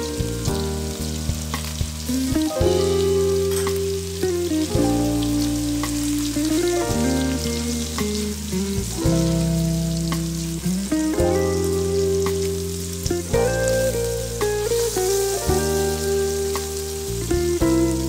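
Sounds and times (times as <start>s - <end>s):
background music of held chords: 0.0s - 18.0s
food sizzling in oil in a wok: 0.0s - 18.0s.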